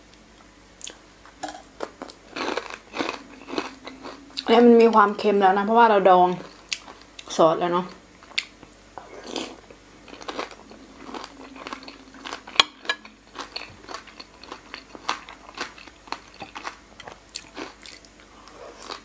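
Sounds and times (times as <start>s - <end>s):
wet chewing with crunchy clicks: 6.4s - 7.3s.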